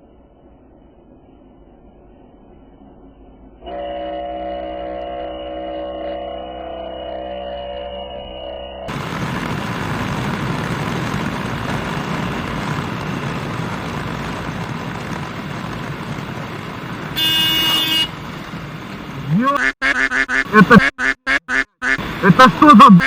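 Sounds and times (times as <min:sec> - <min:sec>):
road and wind noise: 0:00.0 - 0:06.0, 0:08.4 - 0:19.7, 0:20.4 - 0:23.0
vehicle horn: 0:03.7 - 0:08.6, 0:17.2 - 0:18.2.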